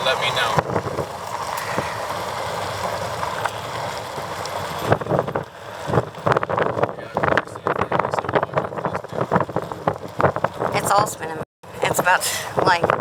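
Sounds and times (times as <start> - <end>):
vehicle wind and road noise: 0.0 - 13.0
irregular knocks and rattles: 4.4 - 11.1.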